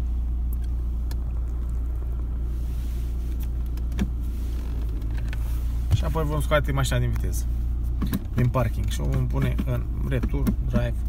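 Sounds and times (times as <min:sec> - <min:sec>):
diesel engine idling: 0:00.0 - 0:11.0
gear selector clicks: 0:08.0 - 0:11.0.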